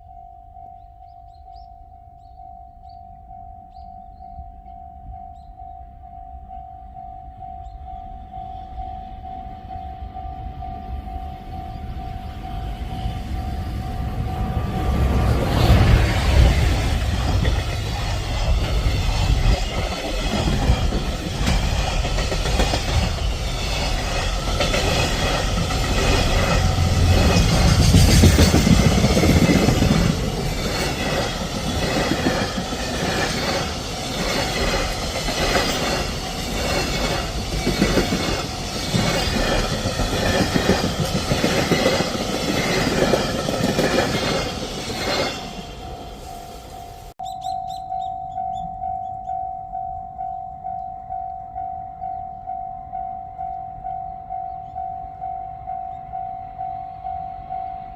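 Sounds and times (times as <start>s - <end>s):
train passing at speed: 3.7s - 57.9s
wheels clickety-clack over rail joints: 11.7s - 46.5s.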